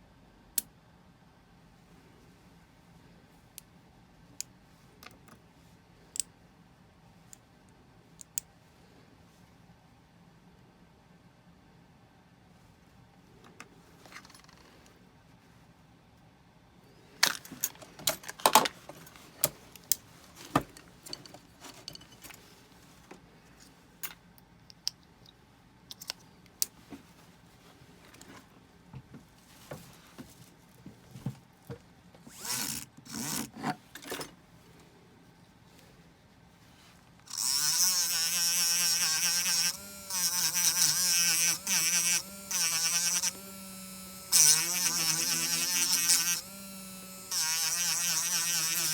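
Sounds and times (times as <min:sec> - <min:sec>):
electric rotary tool buzzing: 0:37.3 - 0:48.9.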